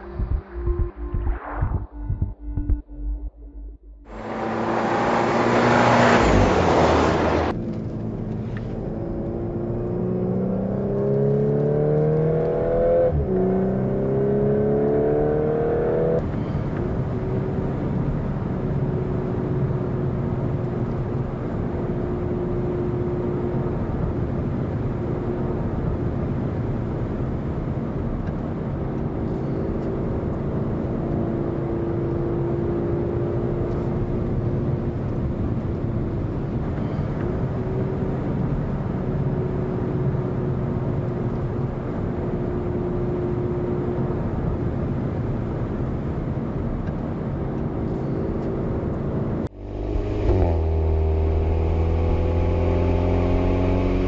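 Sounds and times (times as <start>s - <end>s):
loud rushing noise: 0.0s - 2.8s
car engine and exhaust: 0.0s - 54.0s.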